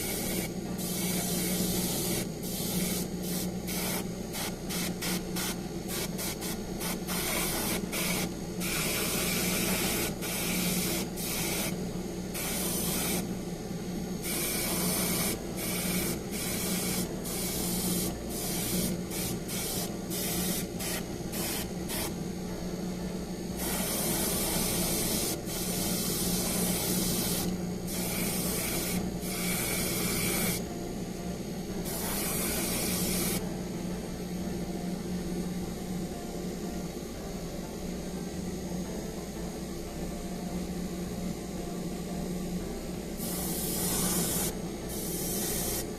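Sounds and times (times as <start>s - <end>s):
paint spraying hiss: 0.0s - 13.5s, 14.2s - 22.2s, 23.6s - 30.7s, 31.8s - 33.4s, 43.2s - 45.9s
steady low hum: 0.0s - 45.9s.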